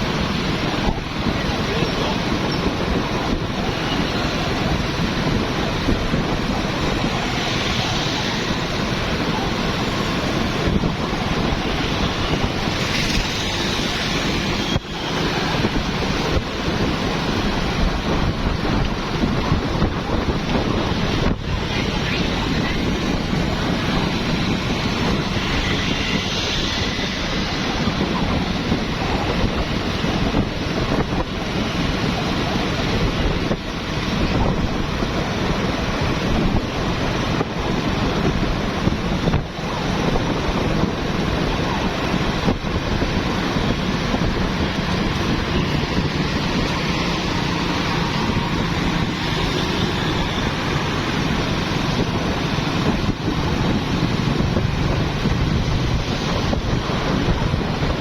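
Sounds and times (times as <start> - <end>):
motorbikes and cars passing: 0.0 - 58.0
street traffic rumble: 0.0 - 58.0
wind buffeting microphone: 0.0 - 58.0.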